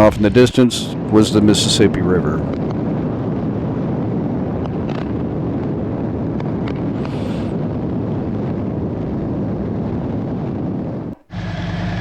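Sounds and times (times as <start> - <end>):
wind rush on microphone: 0.0 - 12.0
motorcycle engine cruising: 2.5 - 12.0.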